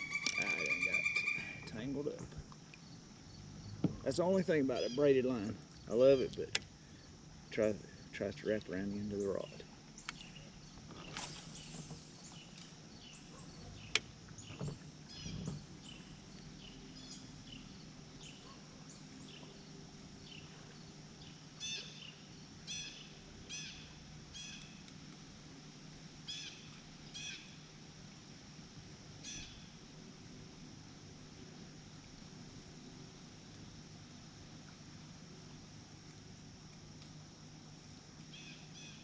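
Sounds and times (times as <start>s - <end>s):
birds chirping: 0.0s - 7.1s
faint low hum: 0.0s - 39.0s.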